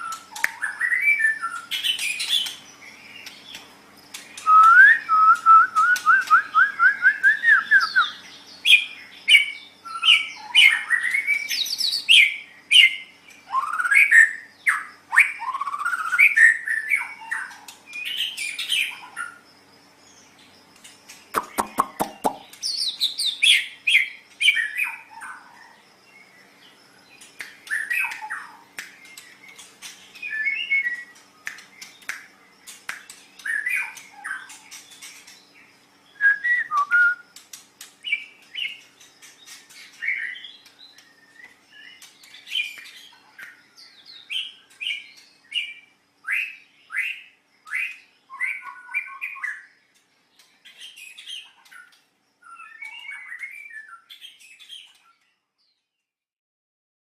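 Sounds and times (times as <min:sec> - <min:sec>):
bird singing whistled phrases: 0:00.0 - 0:02.5, 0:04.4 - 0:19.0, 0:30.2 - 0:31.2, 0:33.4 - 0:34.6, 0:36.1 - 0:37.3, 0:40.0 - 0:49.7, 0:52.4 - 0:55.0
sharp bird clicks: 0:00.0 - 0:06.6, 0:20.8 - 0:23.3, 0:27.2 - 0:35.5, 0:36.6 - 0:45.7.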